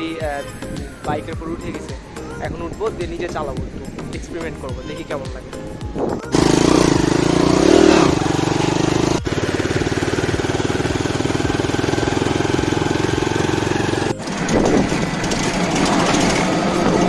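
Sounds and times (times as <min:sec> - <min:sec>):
quad bike engine running: 0:06.2 - 0:17.0.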